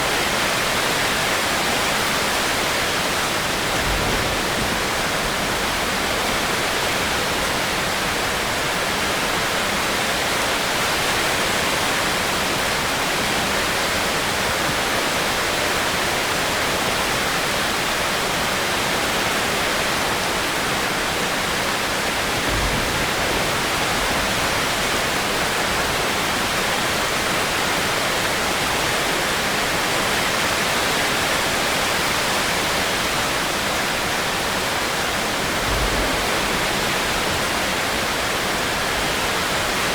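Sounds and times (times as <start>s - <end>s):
low thud: 22.5s - 24.4s.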